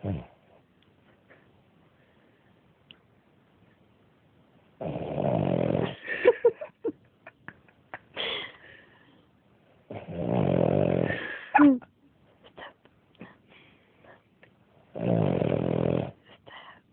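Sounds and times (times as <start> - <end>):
dog snoring: 0.0 - 0.5, 4.8 - 6.0, 9.9 - 11.3, 14.9 - 16.2.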